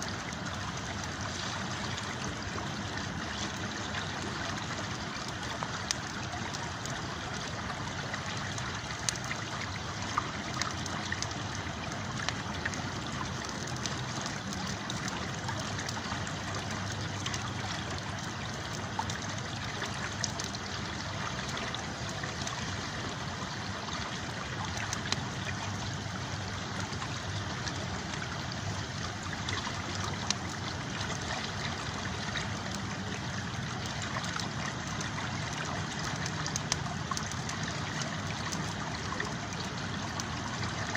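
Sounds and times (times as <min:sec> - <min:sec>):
river water flowing: 0:00.0 - 0:40.9
campfire crackling: 0:00.1 - 0:40.9.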